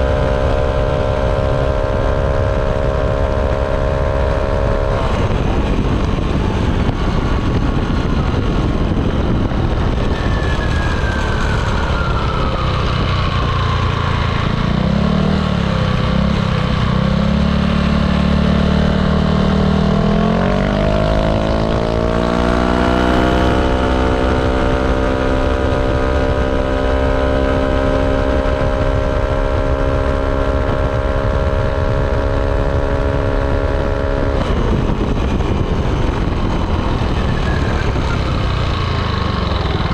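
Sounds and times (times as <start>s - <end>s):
scooter engine exhaust: 0.0s - 39.9s
wind and road noise: 0.0s - 39.9s.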